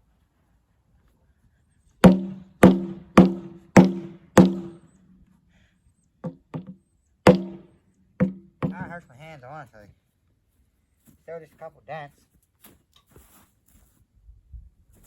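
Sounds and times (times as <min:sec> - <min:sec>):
steel tank struck ringing: 0:02.0 - 0:04.8, 0:07.3 - 0:07.6.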